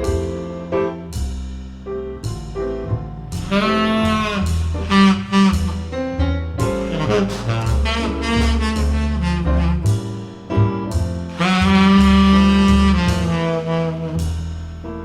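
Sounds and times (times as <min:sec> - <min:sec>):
low bass line: 0:00.0 - 0:15.0
tenor saxophone jazz ballad: 0:03.3 - 0:15.0.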